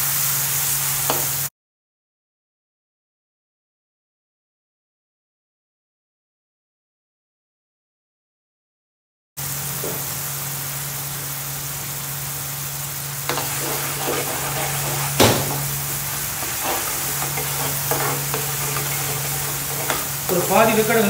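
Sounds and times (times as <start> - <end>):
onions sizzling in hot oil: 0.0 - 1.5, 9.4 - 21.0
steady low hum: 10.9 - 20.9
ladle scraping and knocking pan: 13.3 - 20.9.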